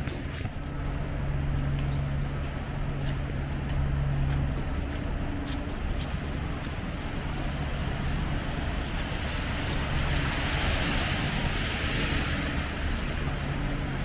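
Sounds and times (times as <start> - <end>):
street traffic rumble: 0.0 - 14.0
tyre hiss on snowy street: 5.4 - 14.0.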